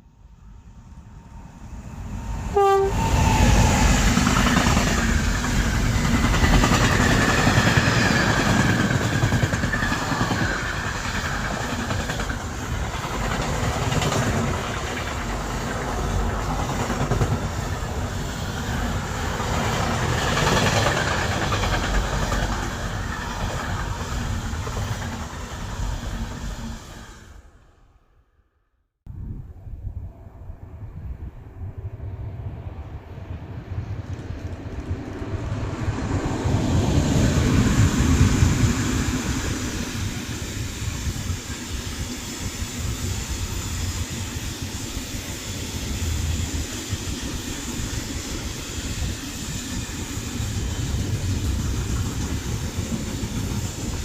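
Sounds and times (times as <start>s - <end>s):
train wheels rumbling and clattering: 1.8s - 27.1s, 32.5s - 54.0s
train horn blast: 2.5s - 3.2s.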